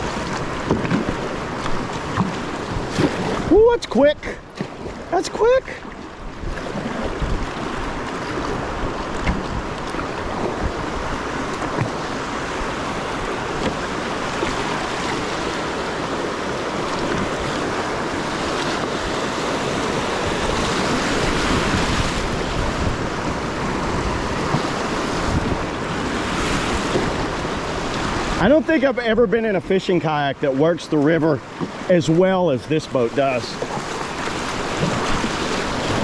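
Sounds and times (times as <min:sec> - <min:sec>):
river water rushing: 0:00.0 - 0:36.0
wind buffeting microphone: 0:06.2 - 0:28.4.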